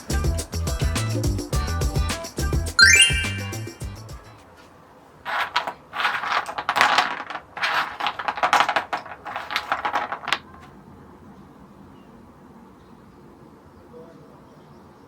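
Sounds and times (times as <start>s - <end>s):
small hard parts clicking and rattling: 5.3s - 10.6s.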